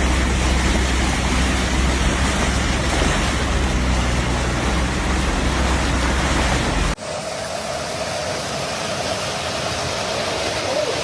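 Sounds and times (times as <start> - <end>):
deep rumble: 0.0 - 7.0
torrential rain hissing: 0.0 - 11.0.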